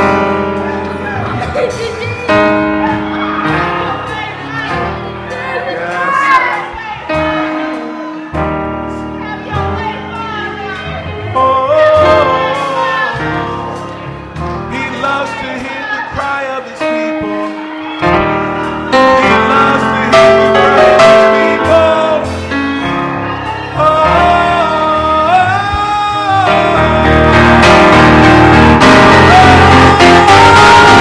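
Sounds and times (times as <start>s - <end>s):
instrumental accompaniment: 0.0s - 31.0s
men and women singing together: 9.2s - 14.1s, 14.7s - 31.0s.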